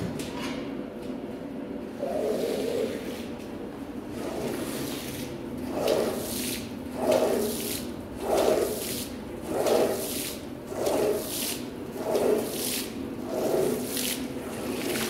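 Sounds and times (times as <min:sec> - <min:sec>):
water squishing and swishing: 0:04.0 - 0:15.0
wet strokes across soaked rug: 0:04.2 - 0:15.0.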